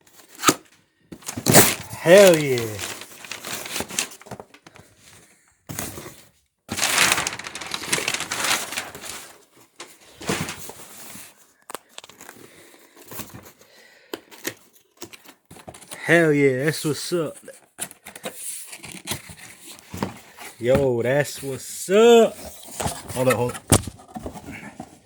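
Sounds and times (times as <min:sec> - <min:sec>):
packaging crinkling and rustling: 0:00.1 - 0:13.6, 0:22.4 - 0:25.0.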